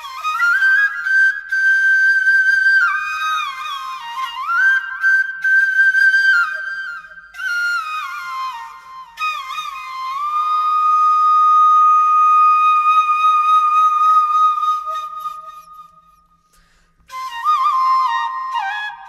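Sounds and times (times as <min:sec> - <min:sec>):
solo flute melody: 0:00.0 - 0:19.0.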